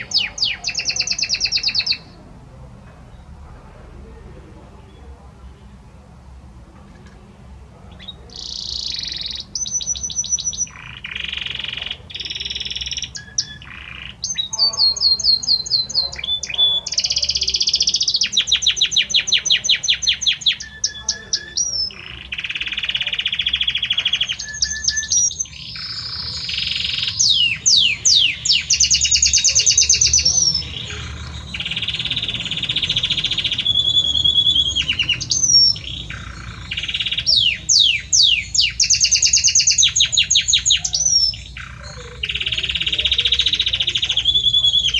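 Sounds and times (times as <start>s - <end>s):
canary singing trills: 0.0s - 5.8s, 6.4s - 44.9s.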